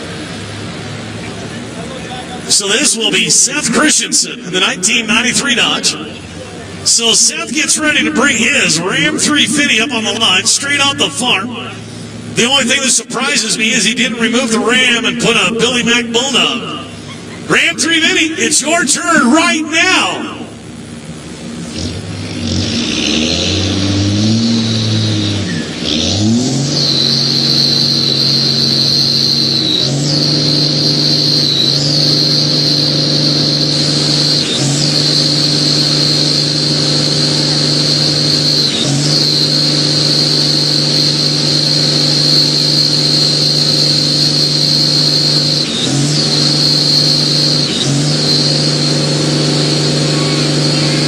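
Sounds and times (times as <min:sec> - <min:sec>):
pickup engine revving: 0:00.0 - 0:51.0
steady high tire squeal: 0:21.8 - 0:51.0.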